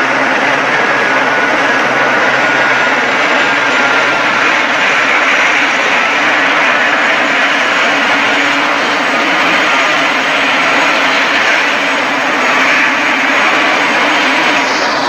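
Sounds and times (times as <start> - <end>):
helicopter turbine and rotor: 0.0 - 15.0.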